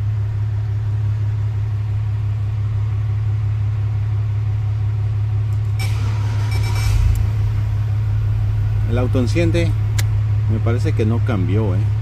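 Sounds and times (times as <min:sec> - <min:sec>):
steady low hum: 0:00.0 - 0:12.0
engine starting: 0:05.8 - 0:07.6
car engine starter cranking: 0:05.8 - 0:08.0.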